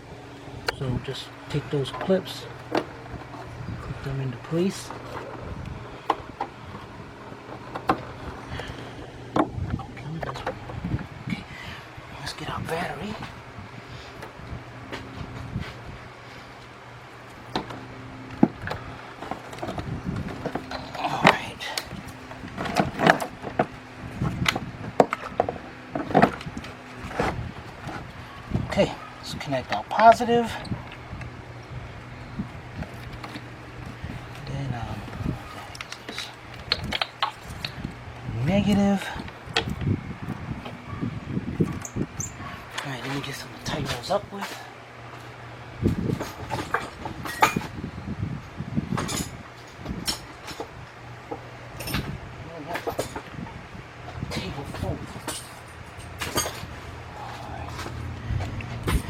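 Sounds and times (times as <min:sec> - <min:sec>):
low steady hum: 0:00.0 - 0:59.0
metal tools clinking: 0:51.8 - 0:53.3, 0:54.3 - 0:59.0.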